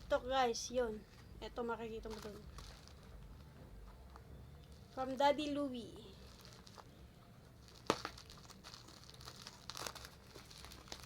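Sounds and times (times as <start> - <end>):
plastic packaging crinkling: 2.0 - 3.5, 6.1 - 11.0.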